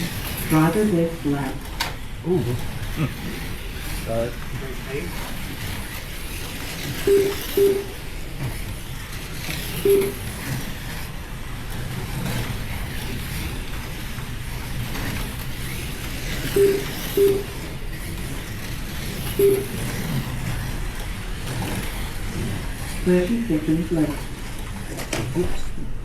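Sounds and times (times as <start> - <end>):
slot cars whirring: 0.0 - 26.0
lap timer beeps: 7.0 - 8.0, 9.8 - 10.3, 16.5 - 17.6, 19.3 - 19.8.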